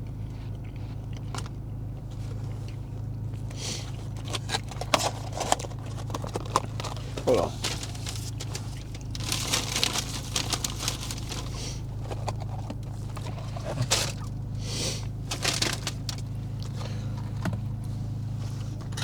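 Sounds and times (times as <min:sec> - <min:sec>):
steady low hum: 0:00.0 - 0:19.0
food packaging rustling and crinkling: 0:03.4 - 0:17.6.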